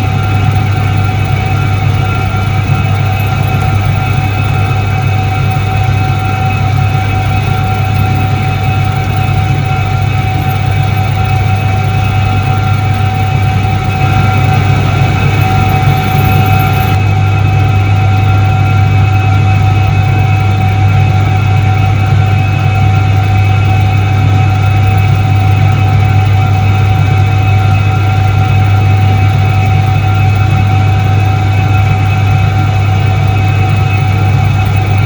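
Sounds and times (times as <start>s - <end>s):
washing machine motor humming: 0.0s - 19.1s, 31.6s - 35.0s
constant high tones: 0.0s - 35.0s.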